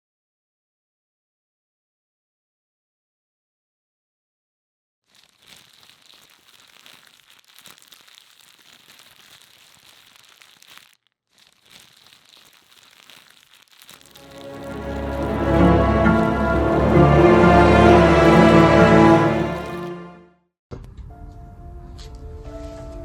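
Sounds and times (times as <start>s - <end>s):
faint crackling rustling clicks: 5.1s - 19.8s.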